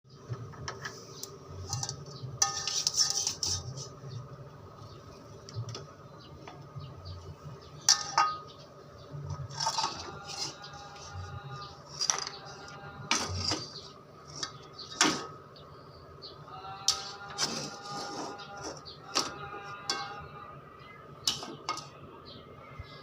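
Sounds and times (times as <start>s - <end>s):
pots and pans clinking: 1.7s - 3.7s, 7.8s - 8.6s, 12.0s - 13.8s.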